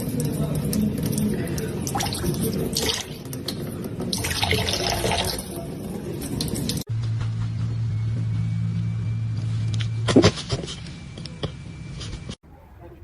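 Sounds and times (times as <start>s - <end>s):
running water splashing: 0.0s - 6.9s.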